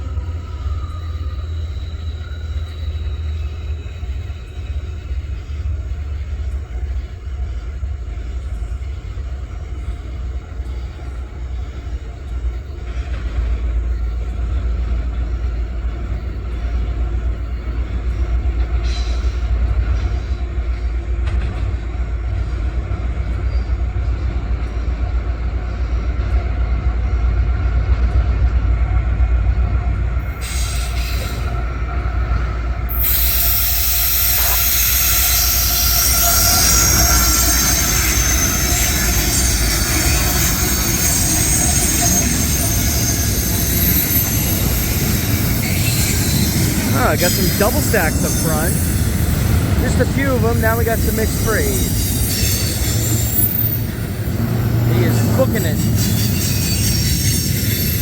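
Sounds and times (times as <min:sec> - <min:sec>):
freight train rumbling past: 0:00.0 - 0:58.0
steel wheels hissing on rail: 0:00.0 - 0:58.0
wheel squeal: 0:00.1 - 0:05.2, 0:32.9 - 0:58.0.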